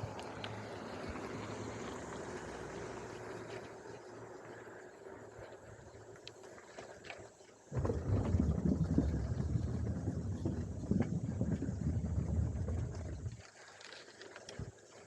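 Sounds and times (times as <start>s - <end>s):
bicycle rattling over rough surface: 6.4s - 15.0s.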